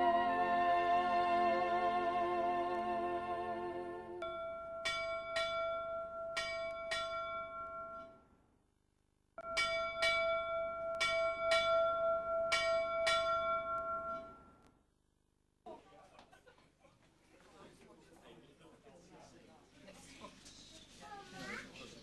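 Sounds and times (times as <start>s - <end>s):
church bell ringing: 4.2s - 8.2s, 9.4s - 14.6s.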